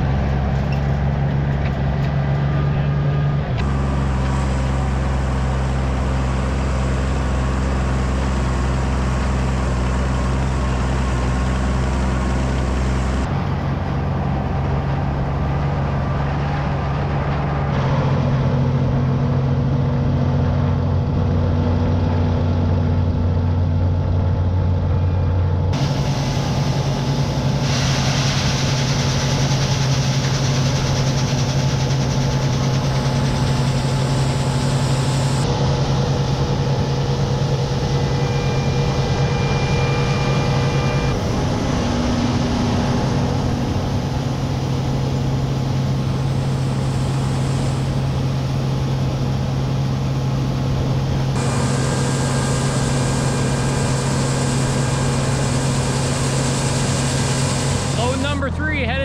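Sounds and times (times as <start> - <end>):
farm machinery engines running: 0.0 - 59.0.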